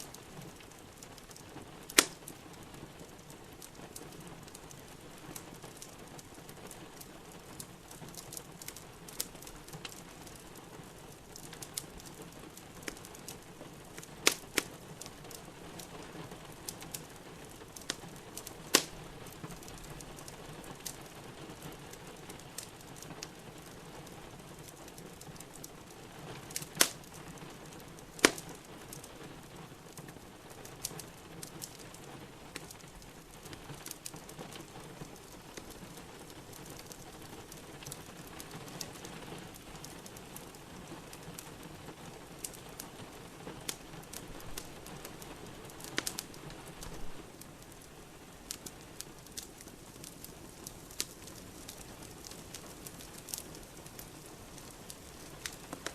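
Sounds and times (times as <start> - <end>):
rain hissing: 0.0 - 55.9
wood fire crackling: 0.0 - 55.9
fire popping sharply: 1.9 - 2.4, 14.0 - 15.4, 17.8 - 19.8, 26.5 - 28.7.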